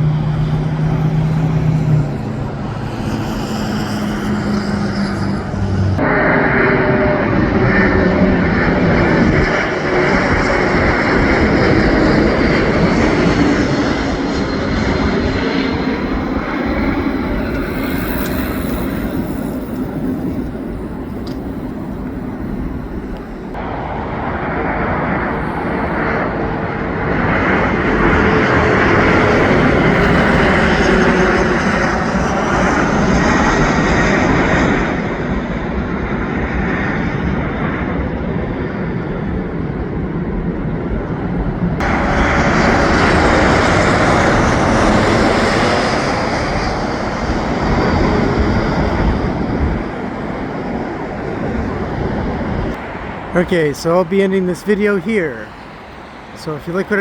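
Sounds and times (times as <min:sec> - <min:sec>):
jet airliner passing overhead: 0:00.0 - 0:57.0.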